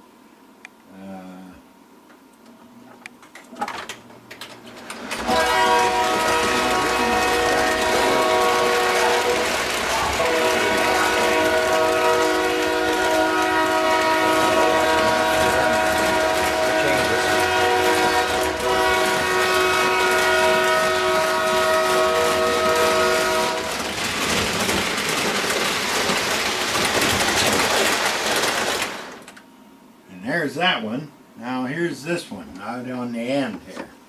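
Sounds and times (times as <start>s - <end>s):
model train running on track: 4.8s - 29.4s
model train horn: 5.1s - 23.9s.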